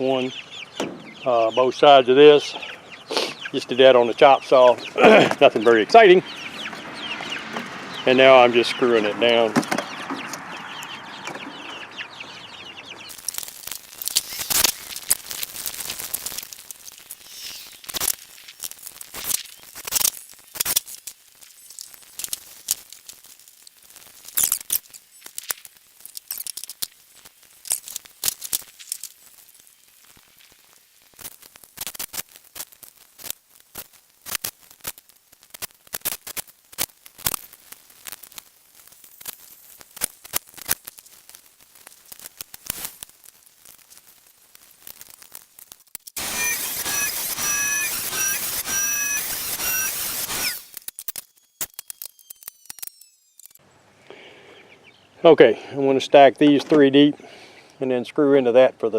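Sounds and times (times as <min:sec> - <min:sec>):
chickens clucking: 0:00.0 - 0:13.2.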